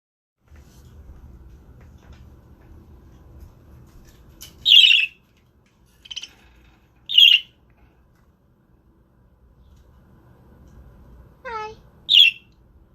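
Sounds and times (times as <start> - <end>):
budgerigars chirping: 4.6 - 5.2, 7.1 - 7.5, 12.1 - 12.5.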